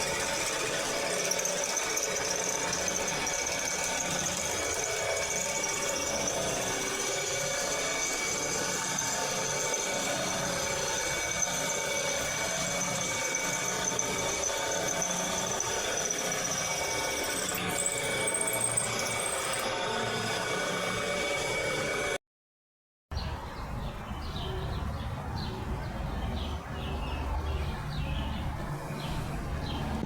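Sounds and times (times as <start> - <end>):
machine motor whining: 0.0 - 22.2.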